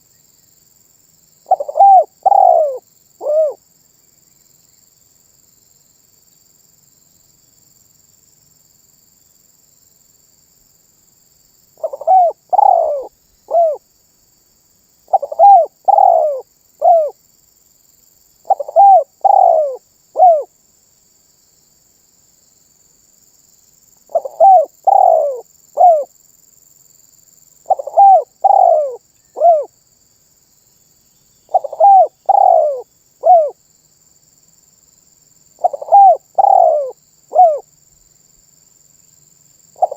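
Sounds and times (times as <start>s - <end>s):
dove cooing: 1.5s - 3.6s, 11.8s - 13.8s, 15.1s - 17.2s, 18.4s - 20.5s, 24.1s - 26.1s, 27.7s - 29.7s, 31.5s - 33.6s, 35.6s - 37.6s.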